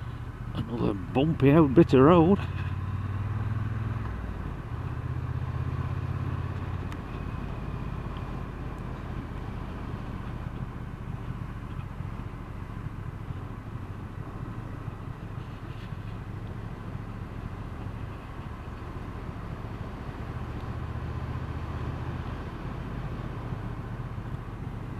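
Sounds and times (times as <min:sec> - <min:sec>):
wind and road noise: 0:00.0 - 0:24.9.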